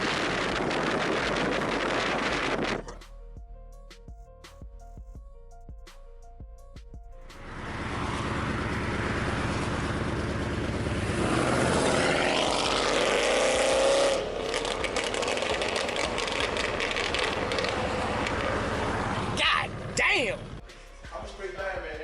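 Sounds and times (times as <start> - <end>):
exhaust crackling: 0.0 - 3.0, 7.3 - 20.7
car engine revving through exhaust: 7.4 - 20.6.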